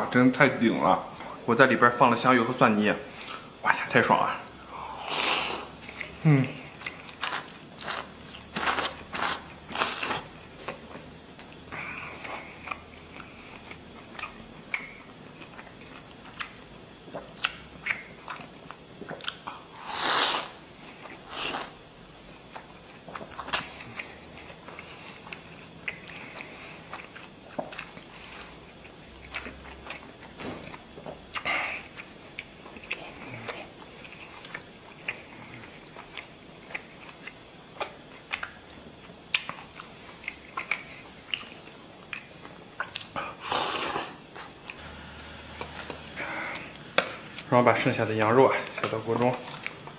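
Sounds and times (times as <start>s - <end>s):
person chewing and biting: 5.0s - 21.8s, 22.4s - 44.9s
loud bursts of noise: 44.8s - 47.4s.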